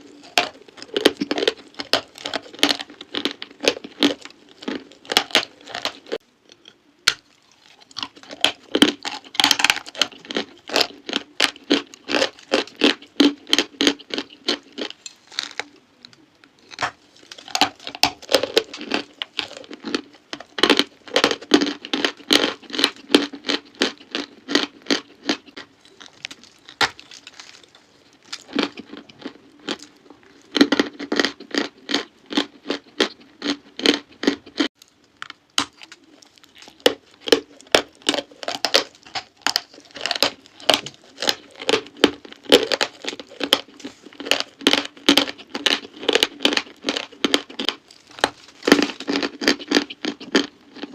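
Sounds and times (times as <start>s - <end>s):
chalk being crunched: 25.8s - 28.7s.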